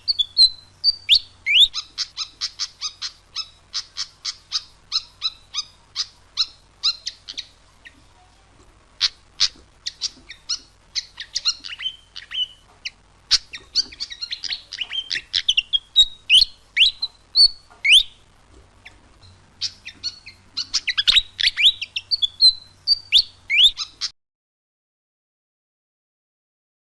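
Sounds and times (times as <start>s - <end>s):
bird chips and chattering whistles: 9.0s - 18.2s.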